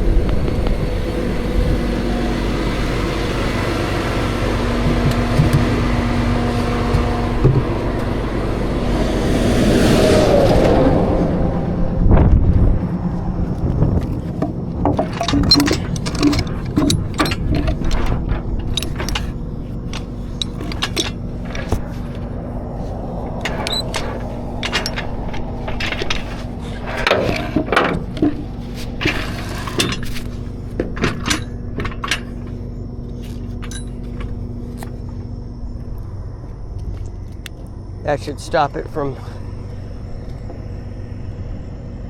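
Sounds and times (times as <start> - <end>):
low engine hum: 0.0 - 42.0
metal clinks and clanks: 14.0 - 22.4, 23.3 - 34.9.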